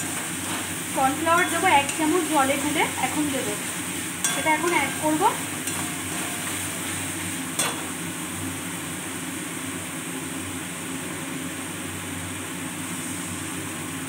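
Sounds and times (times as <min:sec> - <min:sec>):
vegetables sizzling in a pan: 0:00.0 - 0:14.0
spatula clinking against pan: 0:04.2 - 0:06.6, 0:07.6 - 0:07.9.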